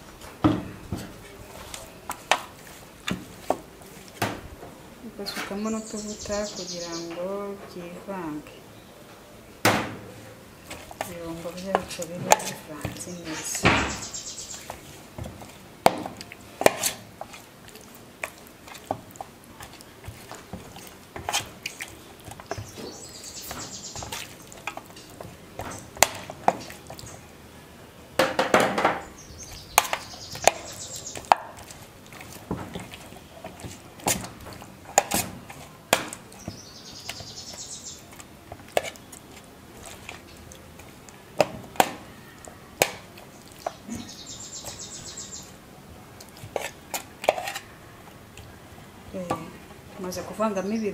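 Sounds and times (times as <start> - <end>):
chicken wings mixed in a bowl: 0.0 - 8.5, 10.0 - 50.9.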